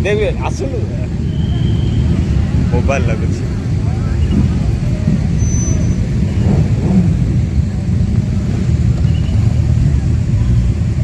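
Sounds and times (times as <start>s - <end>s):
motorbike engines running: 0.0s - 11.0s.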